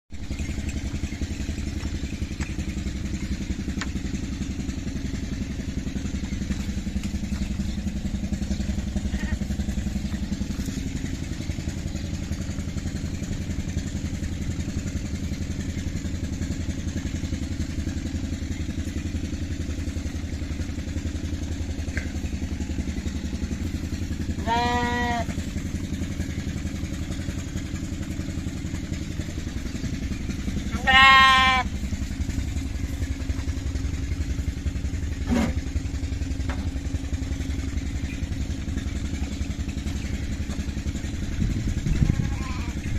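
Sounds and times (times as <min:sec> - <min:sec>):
engine running: 0:00.1 - 0:42.9
lamb bleating: 0:24.4 - 0:25.3, 0:30.7 - 0:31.8, 0:41.9 - 0:42.8.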